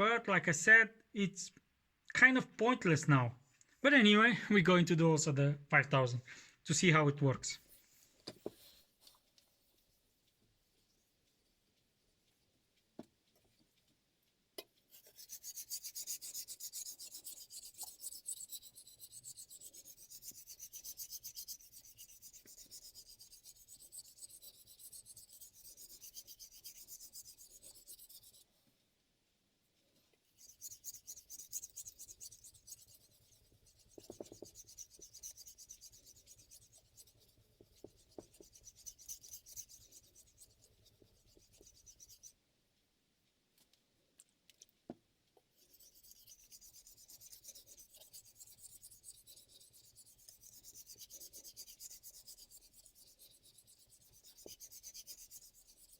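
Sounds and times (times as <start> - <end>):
knife scraping on whetstone: 14.9 - 28.5, 30.4 - 42.2, 45.6 - 55.9.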